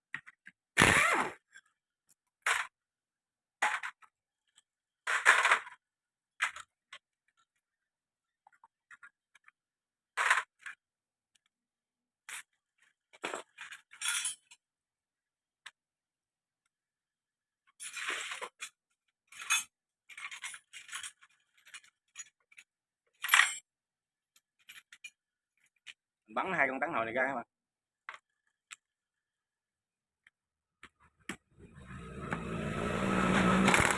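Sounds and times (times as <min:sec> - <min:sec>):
metal tools clinking and scraping: 0:13.4 - 0:14.6.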